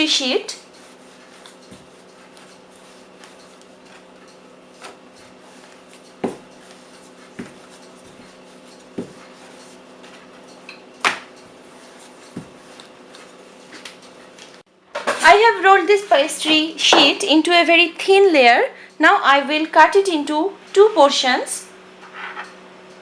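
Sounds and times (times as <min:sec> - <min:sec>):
rolling pin on pastry: 0:00.0 - 0:14.5
rolling pin knocking on board: 0:06.2 - 0:06.5.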